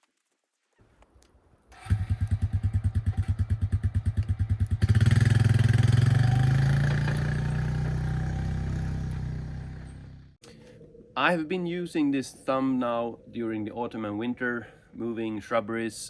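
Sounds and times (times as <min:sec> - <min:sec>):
starter motor cranking: 0:01.8 - 0:03.4
diesel engine running: 0:01.9 - 0:10.4.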